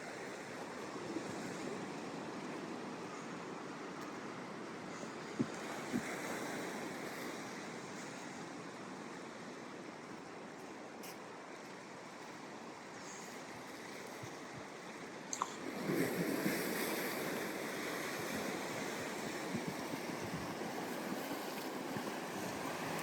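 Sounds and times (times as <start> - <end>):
ocean surf breaking on beach: 15.1 - 23.0.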